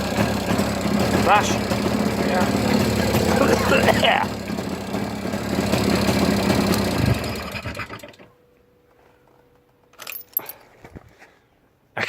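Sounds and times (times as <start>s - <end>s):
motorcycle engine running down: 0.0s - 8.2s.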